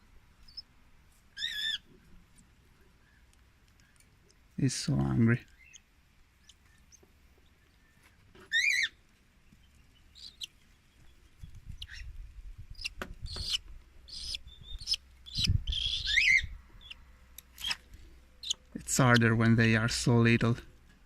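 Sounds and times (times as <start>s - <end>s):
bird chick chirping: 0.4s - 0.7s, 1.4s - 1.9s, 5.5s - 17.8s, 18.4s - 19.2s
bird chick bending call: 12.8s - 17.0s.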